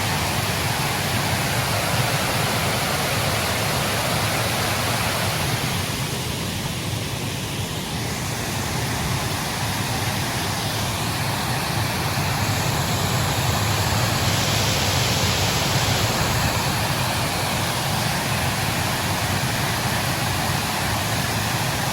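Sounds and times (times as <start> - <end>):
wind blowing against microphone: 8.2 - 20.4.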